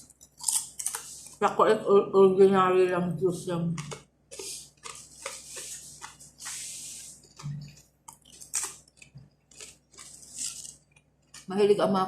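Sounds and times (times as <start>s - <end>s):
person chewing crunchy bread: 0.0s - 1.4s, 3.8s - 11.5s.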